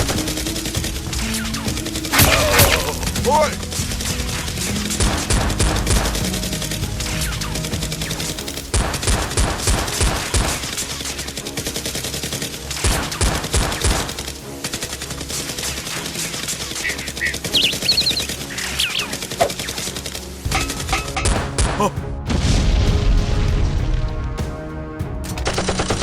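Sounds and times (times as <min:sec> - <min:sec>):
background music: 0:00.0 - 0:26.0.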